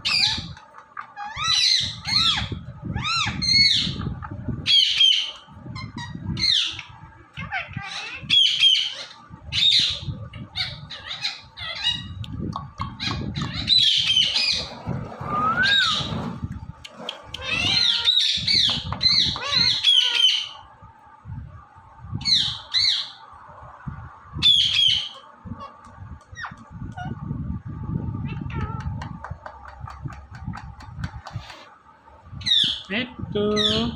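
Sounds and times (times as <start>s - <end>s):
parakeet squawking and chirping: 0.0s - 12.2s, 12.8s - 20.6s, 22.2s - 23.2s, 24.4s - 27.2s, 32.4s - 32.9s, 33.5s - 33.9s.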